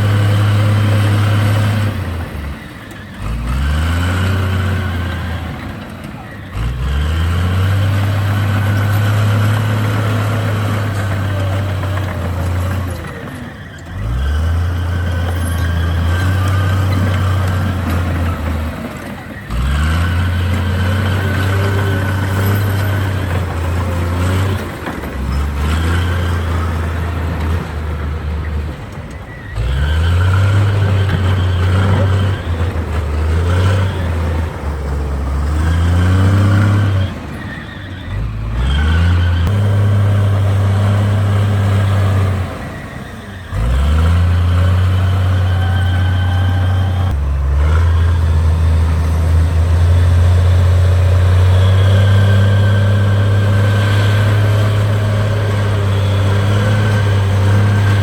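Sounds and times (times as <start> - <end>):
diesel engine under load: 0.0 - 58.0.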